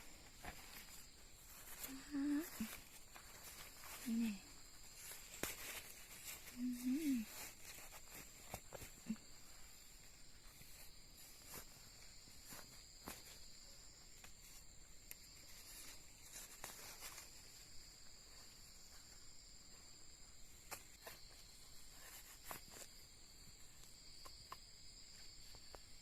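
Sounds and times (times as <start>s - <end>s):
clicks and rustles: 0.0s - 9.2s.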